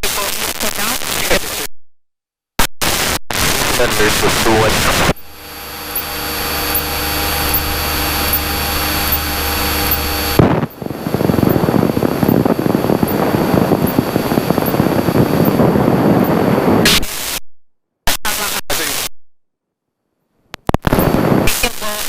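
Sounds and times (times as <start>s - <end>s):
light aircraft engine droning: 5.2s - 16.3s
wind buffeting microphone: 10.4s - 16.8s.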